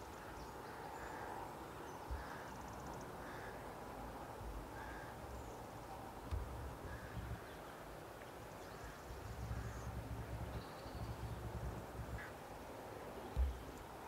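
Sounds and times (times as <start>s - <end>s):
background hiss: 0.0s - 14.0s
distant birds calling: 0.0s - 14.0s
low thumps on microphone: 6.3s - 7.1s, 13.3s - 13.7s.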